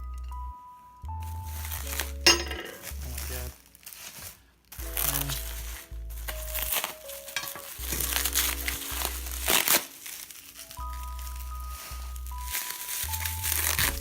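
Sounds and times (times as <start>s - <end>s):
background music with bass: 0.0s - 3.6s, 4.8s - 7.0s, 7.6s - 9.7s, 10.8s - 14.0s
plastic packaging crinkling: 1.5s - 14.0s.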